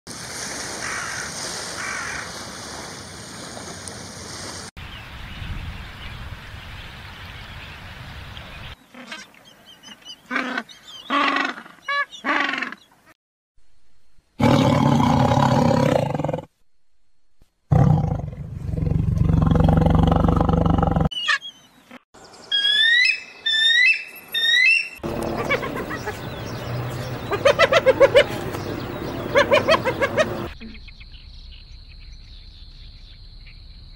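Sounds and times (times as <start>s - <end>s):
animal calls: 10.3s - 12.9s, 21.1s - 30.7s
tiger roaring: 14.4s - 16.5s, 17.7s - 21.1s.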